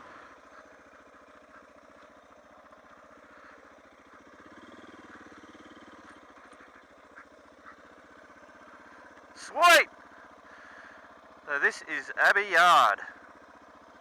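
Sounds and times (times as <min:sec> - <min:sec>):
motorcycle engine running at low revs: 0:00.0 - 0:14.0.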